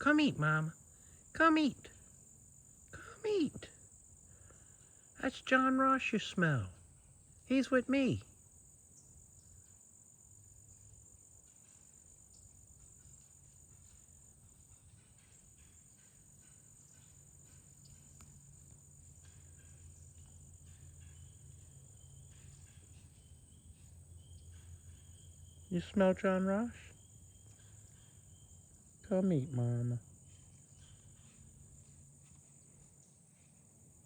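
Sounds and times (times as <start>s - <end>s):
insects chirring: 0.0s - 34.0s
faint ticks: 14.6s - 21.2s.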